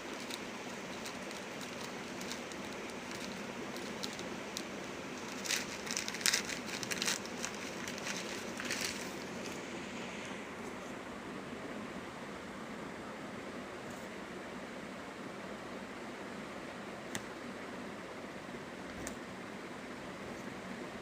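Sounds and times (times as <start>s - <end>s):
packaging clicks: 0.0s - 9.6s
packaging crinkling and rustling: 0.0s - 9.7s
steady hiss: 0.0s - 11.3s.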